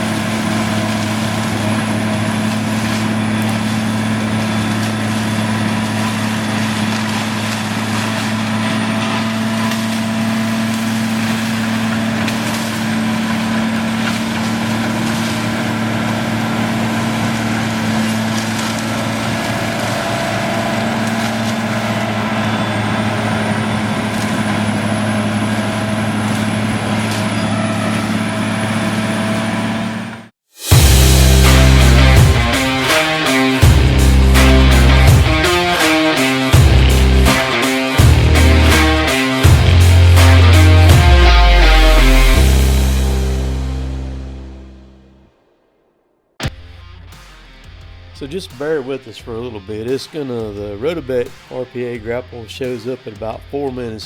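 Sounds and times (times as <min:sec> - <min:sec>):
wood cracking and splintering: 0:00.0 - 0:28.1
heavy diesel machinery running: 0:00.0 - 0:45.3.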